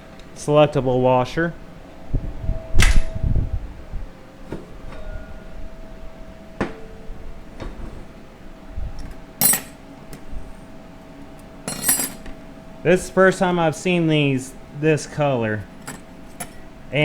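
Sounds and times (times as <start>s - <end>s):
ringing metal clink: 9.0s - 9.9s, 11.6s - 12.4s.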